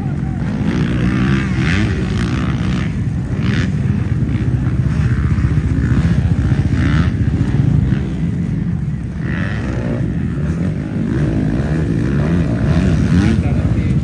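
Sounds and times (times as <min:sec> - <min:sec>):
motocross bike engines running: 0:00.0 - 0:14.0.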